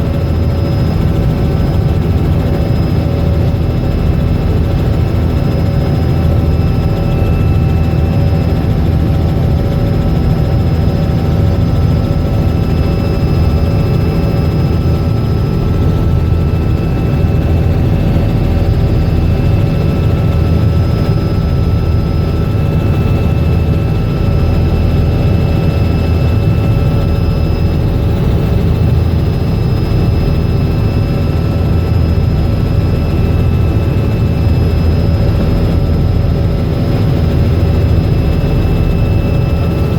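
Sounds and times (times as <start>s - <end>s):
helicopter rotor drone: 0.0s - 39.9s.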